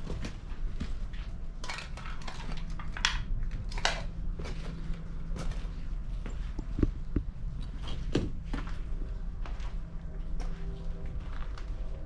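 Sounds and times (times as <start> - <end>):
footsteps crunching on rubble: 4.5 - 12.0.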